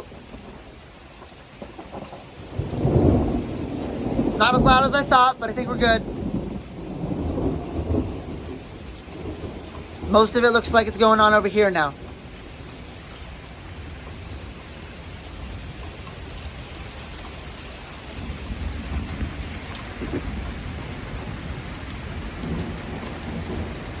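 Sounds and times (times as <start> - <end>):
thunder rumble: 0.0 - 0.8, 1.5 - 13.2, 15.3 - 24.0
heavy rain falling: 0.0 - 24.0.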